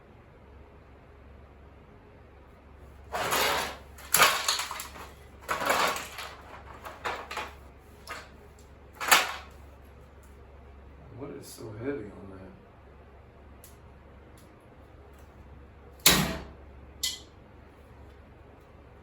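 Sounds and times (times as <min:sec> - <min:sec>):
shredder being handled: 0:03.1 - 0:08.3, 0:09.0 - 0:09.6.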